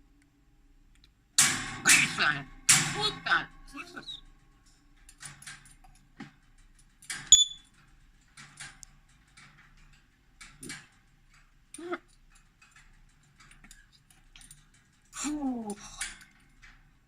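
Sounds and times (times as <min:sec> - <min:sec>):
parrot clicks and chirps: 0:07.3 - 0:07.7.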